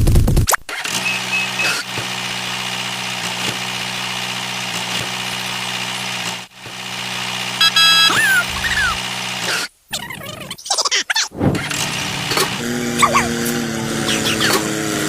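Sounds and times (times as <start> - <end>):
short electronic tones: 0.9 - 1.8, 7.6 - 9.0
tractor engine idling: 7.4 - 9.1.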